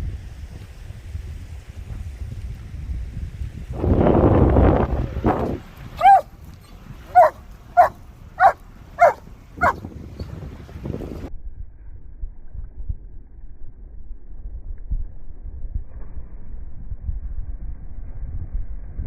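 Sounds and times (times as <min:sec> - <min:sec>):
dog barking: 0:06.0 - 0:06.3, 0:07.1 - 0:09.8.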